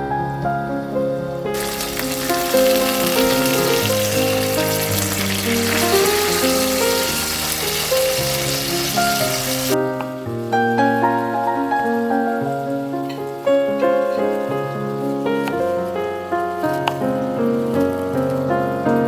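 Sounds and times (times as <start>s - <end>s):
gentle background music: 0.0s - 19.0s
food sizzling in a pan: 1.6s - 9.8s.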